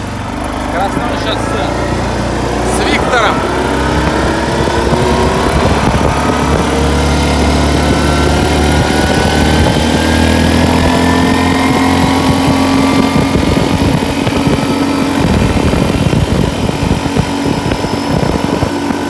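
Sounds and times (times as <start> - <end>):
vehicle engine running under load: 0.0 - 19.0.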